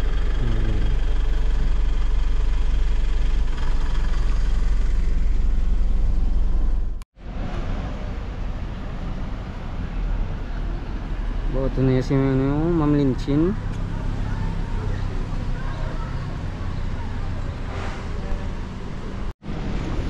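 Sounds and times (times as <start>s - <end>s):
vehicle engine idling: 0.0s - 7.0s, 8.0s - 19.3s.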